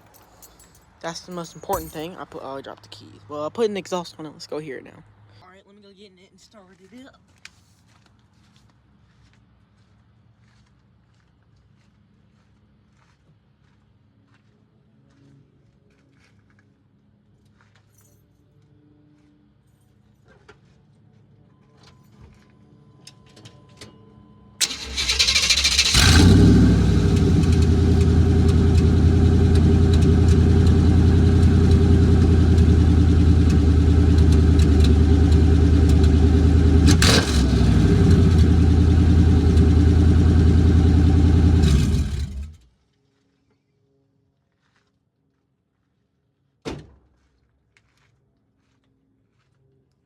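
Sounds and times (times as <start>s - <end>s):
loud truck engine idling: 24.6s - 42.6s
truck engine cranking: 24.6s - 42.6s.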